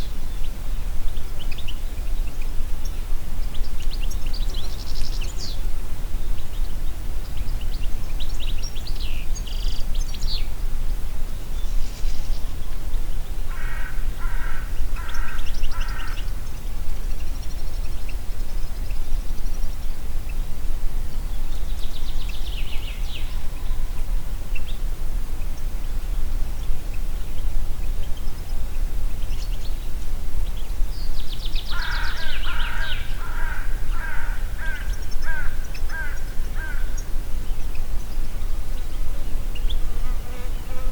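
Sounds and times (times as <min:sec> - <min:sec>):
wind with low rumble: 0:00.0 - 0:40.9
birds chirping and trilling: 0:11.3 - 0:19.9, 0:26.6 - 0:39.9
rapid harsh bird calls: 0:13.5 - 0:16.6, 0:31.6 - 0:37.1.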